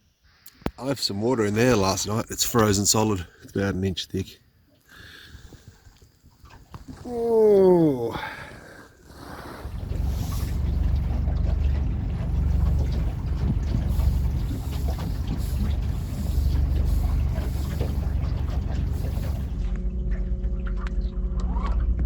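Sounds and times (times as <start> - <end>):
outboard motor running: 6.4 - 22.0
wind buffeting microphone: 9.6 - 19.7.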